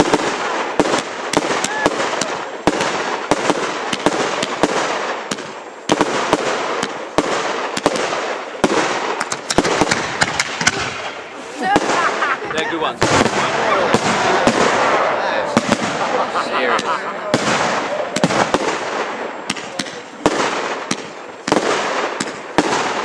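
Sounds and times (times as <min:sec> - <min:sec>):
fireworks bangs and crackling: 0:00.0 - 0:23.0
strong firework bang: 0:13.0 - 0:23.0.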